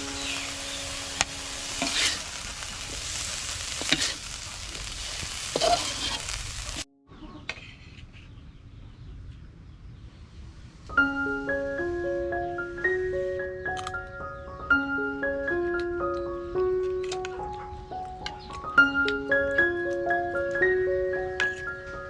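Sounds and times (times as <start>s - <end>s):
food sizzling in a pan: 0.0s - 6.9s
spatula scraping a pan: 0.2s - 6.8s, 7.4s - 8.3s.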